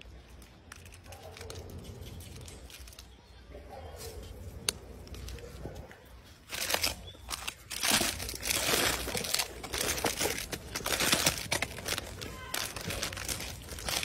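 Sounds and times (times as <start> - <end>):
plastic wrappers crinkling: 0.0 - 3.4, 4.0 - 14.0.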